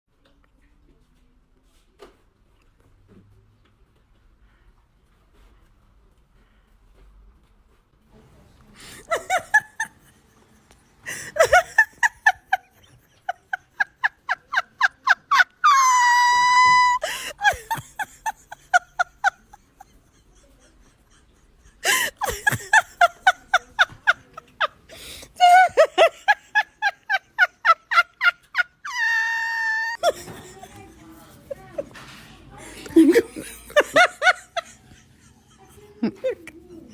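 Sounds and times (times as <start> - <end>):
high-pitched laughter: 8.9 - 10.4, 11.1 - 32.0, 32.8 - 36.9
long high-pitched cry: 15.4 - 17.8, 28.8 - 30.2.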